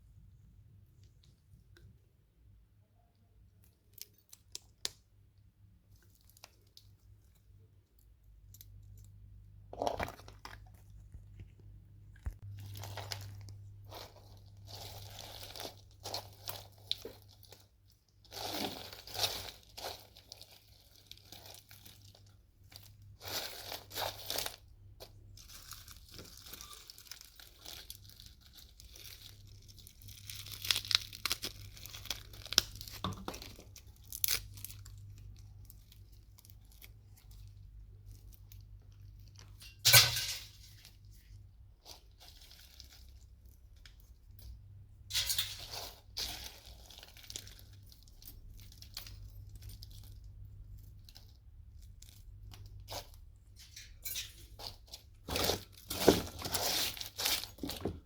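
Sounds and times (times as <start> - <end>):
metal and plastic parts pried apart: 53.5 - 58.0.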